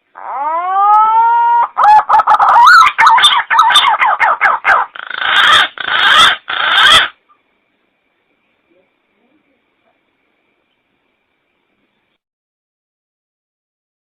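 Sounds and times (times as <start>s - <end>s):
warbling whistled bird call: 0.2s - 7.2s.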